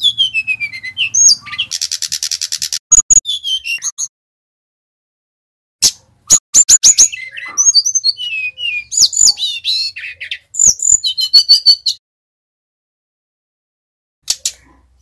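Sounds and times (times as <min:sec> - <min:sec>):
flycatcher singing: 0:00.0 - 0:04.1, 0:06.3 - 0:12.0.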